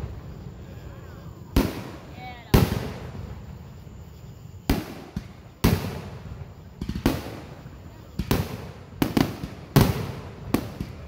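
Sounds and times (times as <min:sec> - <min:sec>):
firework shells bursting with booms: 0:00.0 - 0:11.0
small firework crackles: 0:00.0 - 0:11.0.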